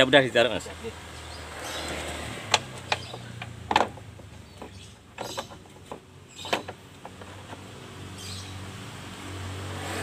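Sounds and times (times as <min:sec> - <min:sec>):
sharp clicks and knocks: 0:02.0 - 0:07.7.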